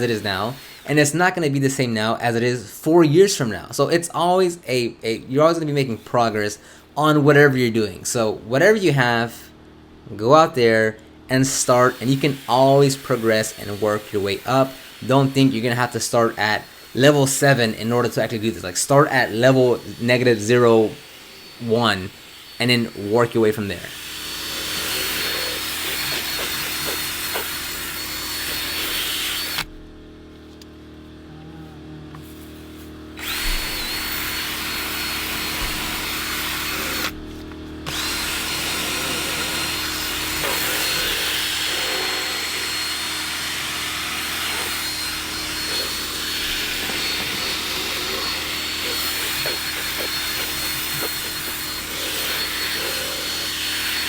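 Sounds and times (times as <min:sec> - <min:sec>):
power tool motor whining: 0:00.0 - 0:01.1, 0:11.3 - 0:29.8, 0:32.2 - 0:54.0.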